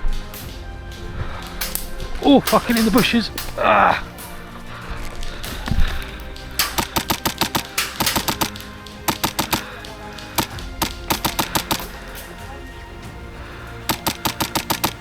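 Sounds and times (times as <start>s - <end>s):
airsoft gun firing: 6.6s - 9.7s, 10.4s - 11.9s, 13.9s - 15.0s.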